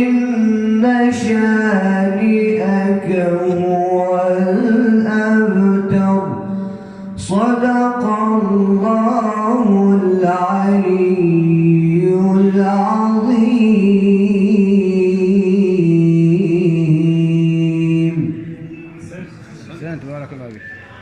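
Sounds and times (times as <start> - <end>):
man chanting melodically: 0.0 - 21.0.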